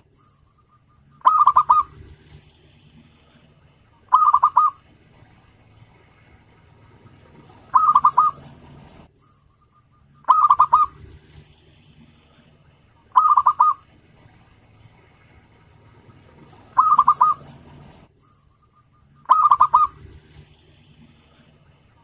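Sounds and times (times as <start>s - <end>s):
dove cooing: 0.2s - 2.4s, 4.1s - 5.0s, 7.1s - 9.1s, 10.1s - 11.5s, 13.1s - 14.3s, 16.2s - 18.1s, 19.2s - 21.5s.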